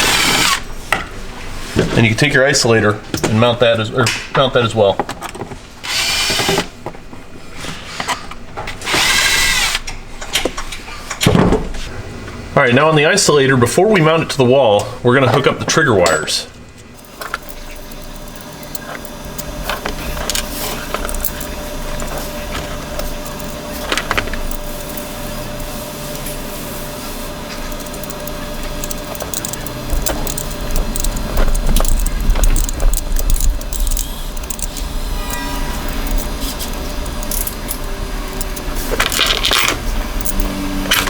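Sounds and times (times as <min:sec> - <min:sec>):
steady hum: 0:05.6 - 0:41.0
tools and small parts clattering: 0:16.9 - 0:41.0.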